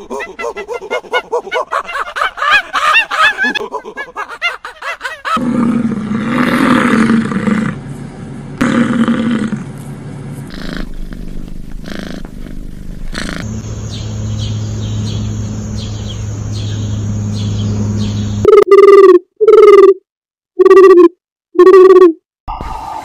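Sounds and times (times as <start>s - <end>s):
steady hum: 5.7s - 18.4s
low pigeon calls: 10.5s - 13.5s
sparrows chirping: 13.0s - 18.5s.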